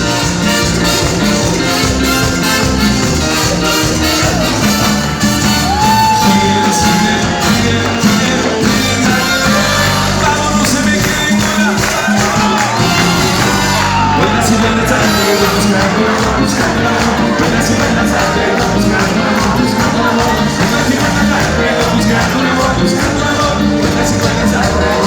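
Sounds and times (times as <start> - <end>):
crowd cheering: 0.0 - 25.0
live latin dance band: 0.0 - 25.0
vocal phrases: 14.0 - 25.0.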